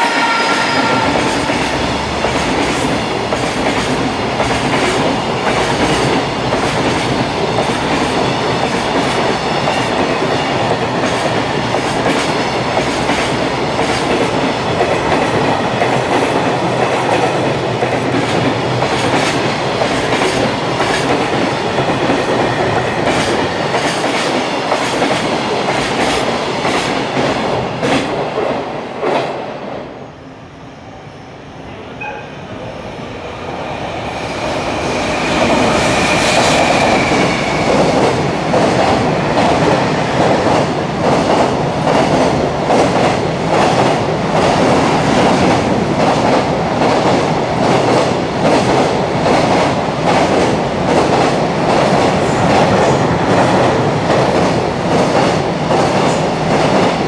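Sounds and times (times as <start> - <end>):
train rumble: 31.7 - 57.0.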